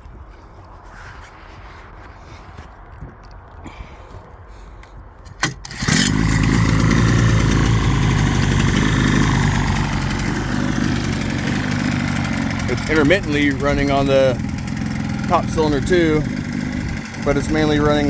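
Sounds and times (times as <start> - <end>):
outboard engine running: 5.4 - 18.0
outboard engine sputter: 5.4 - 18.0.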